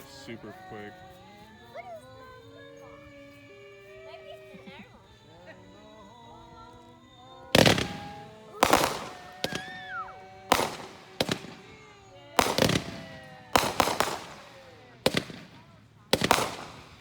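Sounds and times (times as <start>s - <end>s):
fireworks banging: 7.1s - 17.0s
firework cracks: 7.5s - 17.0s.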